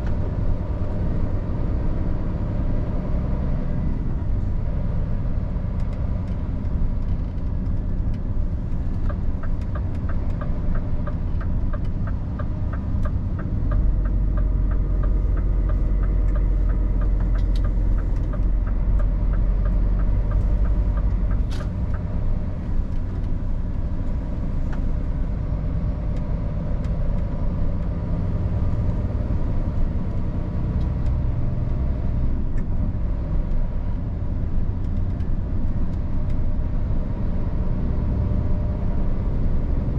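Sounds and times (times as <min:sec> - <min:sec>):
road noise: 0:00.0 - 0:39.9
truck diesel engine rumble: 0:00.0 - 0:39.9
regular ticking: 0:09.0 - 0:23.4.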